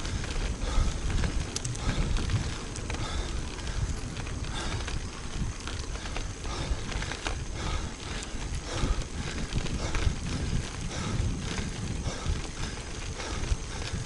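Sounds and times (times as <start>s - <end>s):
bike clicks and rattles: 0.0s - 14.0s
bike tyres on road: 0.0s - 14.0s
wind rumbling on microphone: 0.0s - 14.0s.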